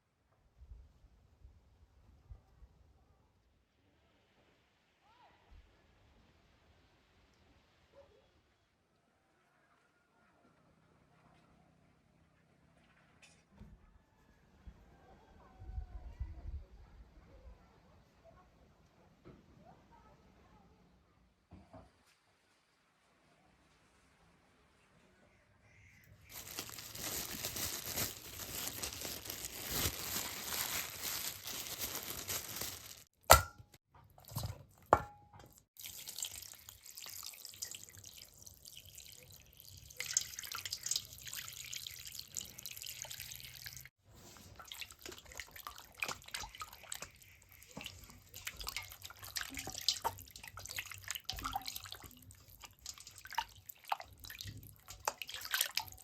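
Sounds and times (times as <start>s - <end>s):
water splashing and dripping: 34.2s - 56.0s.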